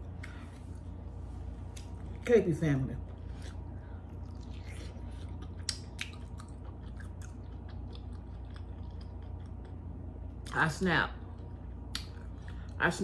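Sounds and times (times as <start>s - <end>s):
steady low hum: 0.0s - 13.0s
chewing corn with crunchy clicks: 4.2s - 10.6s.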